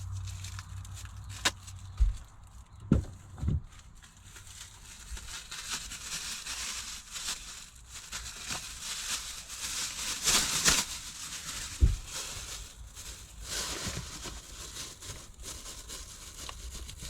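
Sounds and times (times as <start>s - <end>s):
plastic rustling and crinkling: 0.0s - 17.0s
dull thump: 11.8s - 12.1s.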